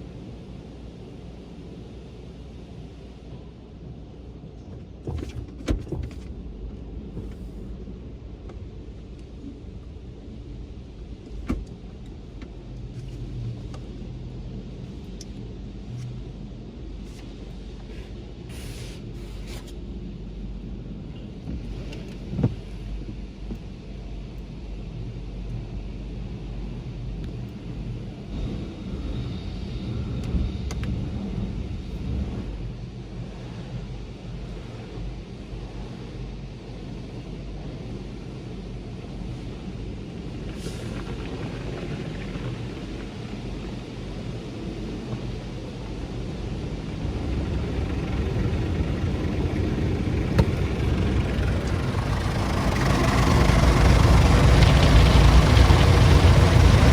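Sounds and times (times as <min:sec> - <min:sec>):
car wash rumble: 0:00.0 - 0:56.9
thump on car: 0:05.0 - 0:06.3, 0:22.3 - 0:22.6
hiss of car wash: 0:16.9 - 0:19.8, 0:31.2 - 0:47.2
brief hiss: 0:17.9 - 0:19.8.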